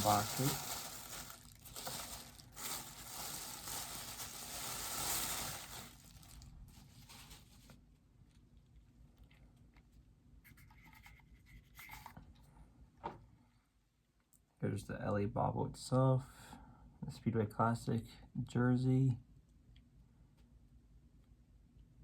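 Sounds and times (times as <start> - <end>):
wrapping rustling and crinkling: 0.0 - 8.6.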